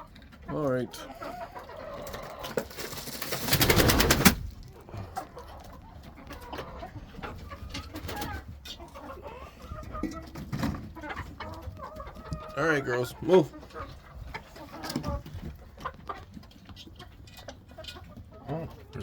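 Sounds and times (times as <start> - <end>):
loud rustling: 2.7 - 4.5.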